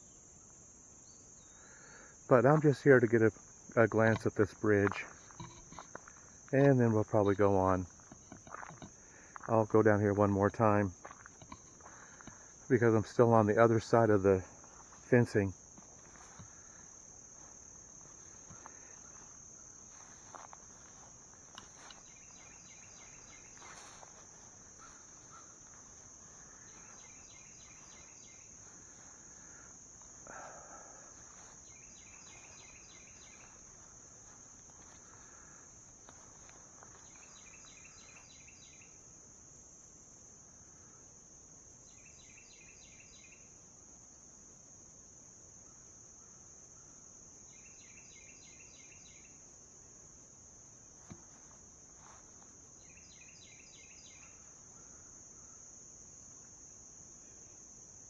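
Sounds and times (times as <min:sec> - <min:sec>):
insect high-pitched trill: 0:00.0 - 0:58.0
insect pulsed chirping call: 0:00.0 - 0:58.0
footsteps and rustles: 0:07.2 - 0:09.6, 0:11.0 - 0:12.9, 0:13.8 - 0:29.4, 0:31.1 - 0:37.4.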